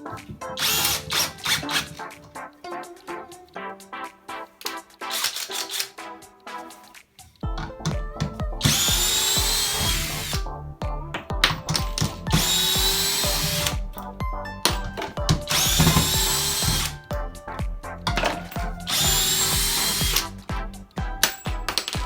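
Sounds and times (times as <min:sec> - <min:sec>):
background music: 0:00.0 - 0:22.0
cordless drill running: 0:00.6 - 0:01.9, 0:05.1 - 0:05.9, 0:08.6 - 0:10.5, 0:12.3 - 0:13.8, 0:15.5 - 0:17.0, 0:18.5 - 0:20.4.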